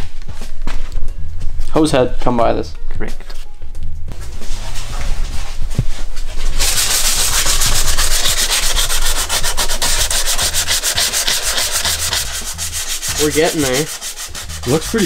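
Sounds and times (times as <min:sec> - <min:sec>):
sanding body filler: 0:06.5 - 0:15.0.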